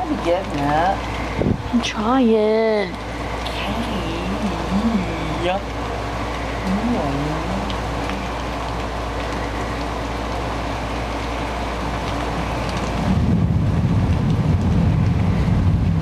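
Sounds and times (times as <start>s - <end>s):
low rumble of thunder: 0.0s - 2.3s, 11.8s - 16.0s
steady rain falling: 0.0s - 16.0s.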